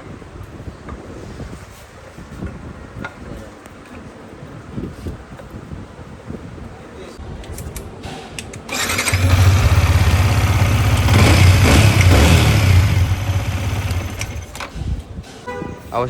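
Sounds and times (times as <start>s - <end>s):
motorcycle engine running: 8.8s - 14.6s.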